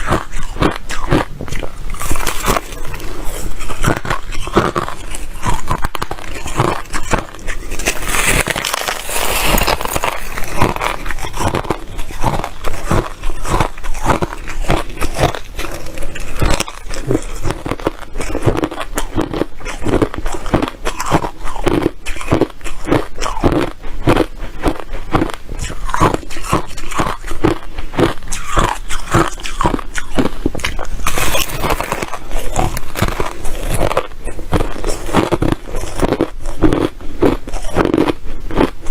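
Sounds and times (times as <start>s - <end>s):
ice chips being chewed: 0.0s - 38.9s.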